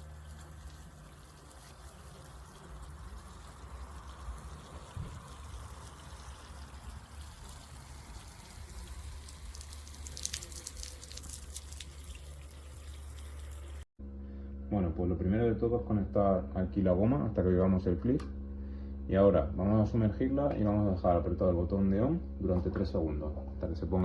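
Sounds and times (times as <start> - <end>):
water trickling and splashing: 0.0 - 13.9
pump humming: 0.0 - 14.5.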